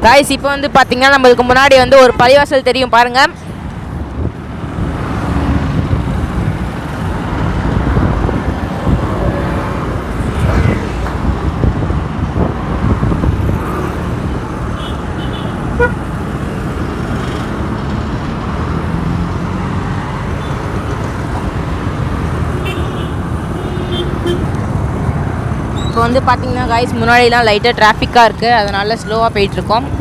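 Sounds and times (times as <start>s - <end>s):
road traffic rumble: 0.0s - 30.0s
horn beep: 15.3s - 16.0s.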